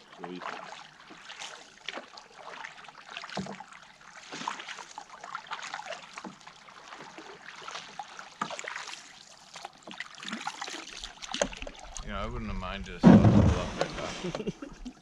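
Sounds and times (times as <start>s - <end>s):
paddle splashing water: 0.0s - 15.0s
dull knock on hull: 12.9s - 14.1s.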